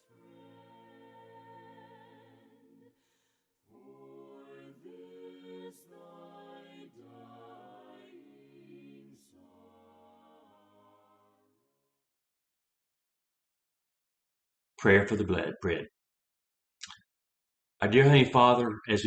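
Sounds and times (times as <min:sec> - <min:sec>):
choir singing a hymn: 0:00.0 - 0:11.5.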